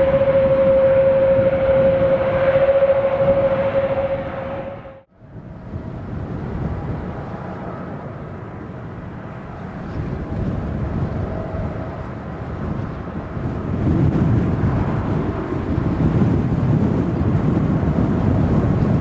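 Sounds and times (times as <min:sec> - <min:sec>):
jet engines rumbling: 0:00.0 - 0:09.6
jet engine whine: 0:00.0 - 0:09.9
wind on microphone: 0:00.0 - 0:19.0.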